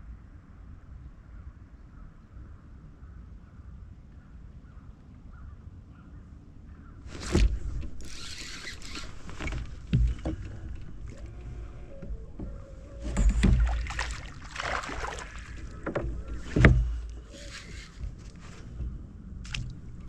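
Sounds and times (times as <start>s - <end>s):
scraping rustle: 7.0s - 20.0s
sharp knocks: 7.2s - 18.2s.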